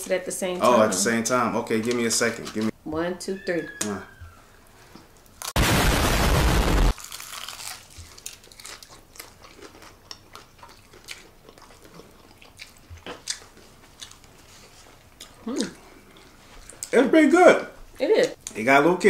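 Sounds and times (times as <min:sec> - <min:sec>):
crackles of chewing crunchy coating: 0:01.6 - 0:02.8, 0:06.9 - 0:17.0
crunch of biting fried chicken: 0:07.0 - 0:14.2.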